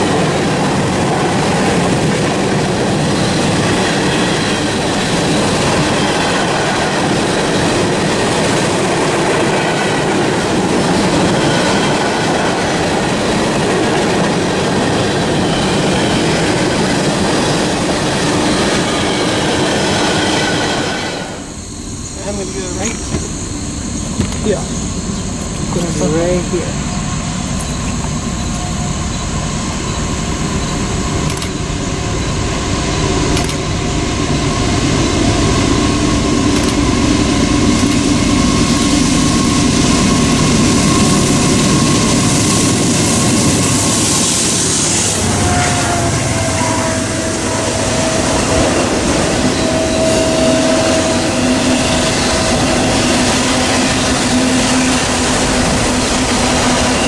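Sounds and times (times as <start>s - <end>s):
train rolling rumble: 0.0s - 57.0s
train wheels squealing: 3.0s - 7.7s, 14.7s - 57.0s.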